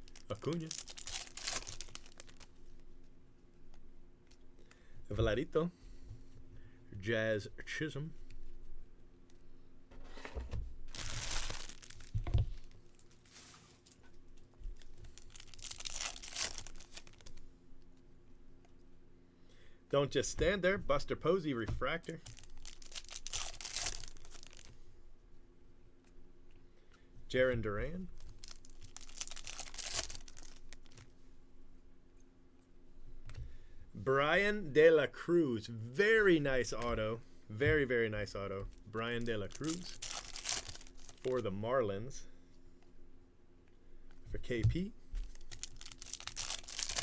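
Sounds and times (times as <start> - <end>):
foil wrapper tearing and crinkling: 0.0 - 2.5, 10.9 - 13.6, 14.8 - 17.4, 22.1 - 24.7, 28.2 - 31.0, 39.2 - 41.4, 45.2 - 47.0
cards shuffled by hand: 10.9 - 14.0, 14.6 - 17.4, 45.2 - 47.0.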